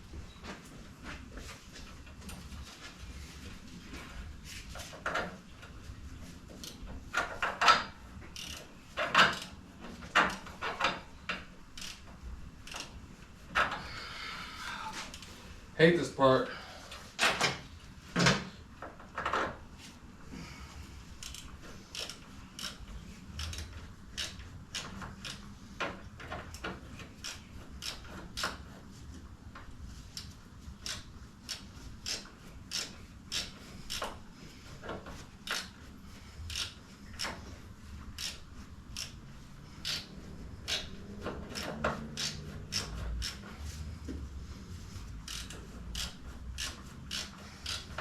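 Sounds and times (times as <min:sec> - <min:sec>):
hand ratchet clicking: 0:06.6 - 0:13.0, 0:21.2 - 0:28.8, 0:30.1 - 0:34.2, 0:35.1 - 0:43.8, 0:44.9 - 0:48.0.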